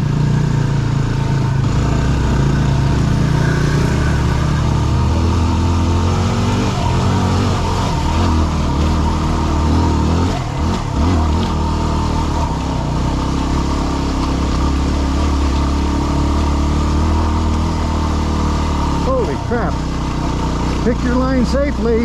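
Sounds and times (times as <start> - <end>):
dirt bike engine running: 0.0 - 22.0.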